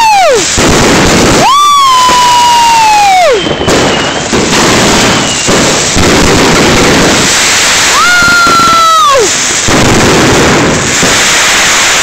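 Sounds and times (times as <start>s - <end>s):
firework crackling: 0.0s - 12.0s
whistling tone sliding down: 1.6s - 4.2s.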